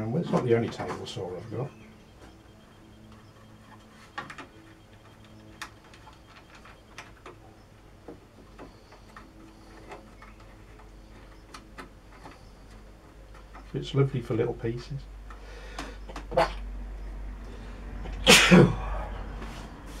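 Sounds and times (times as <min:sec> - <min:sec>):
wood and fittings clicking: 0:03.1 - 0:16.4.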